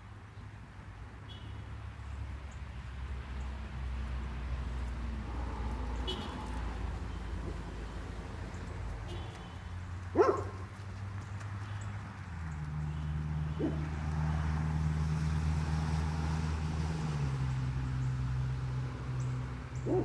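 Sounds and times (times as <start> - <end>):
dog barking: 10.1 - 10.7, 13.6 - 14.0.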